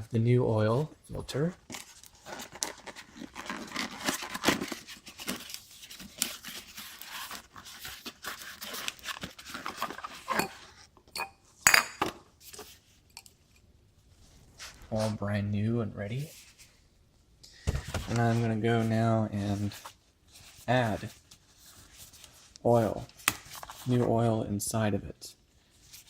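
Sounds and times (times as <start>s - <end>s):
packaging rustling: 1.6s - 10.5s.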